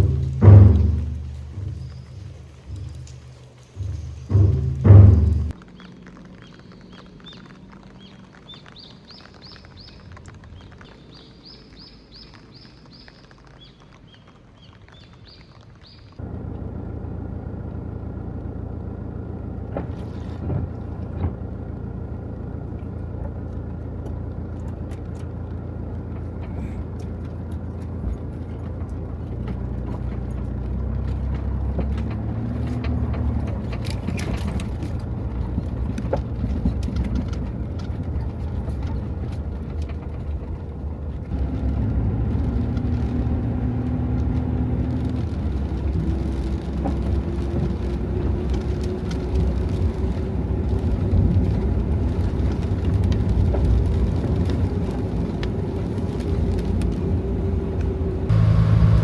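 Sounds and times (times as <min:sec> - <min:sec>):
low engine hum: 0:00.0 - 0:13.5, 0:15.3 - 0:59.0
small birds chirping: 0:00.0 - 0:16.2.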